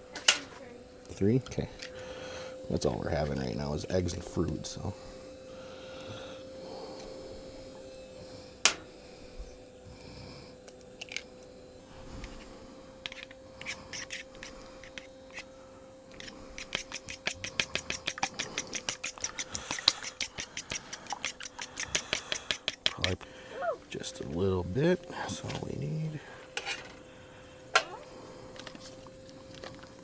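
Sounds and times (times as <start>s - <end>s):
faint steady hum: 0.0s - 30.0s
rapid even clicking: 16.2s - 23.2s.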